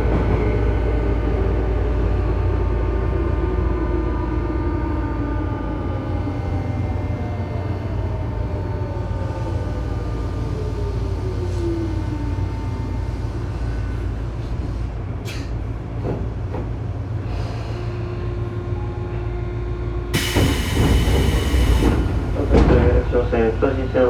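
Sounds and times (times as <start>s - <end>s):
electric train low rumble: 0.0s - 24.0s.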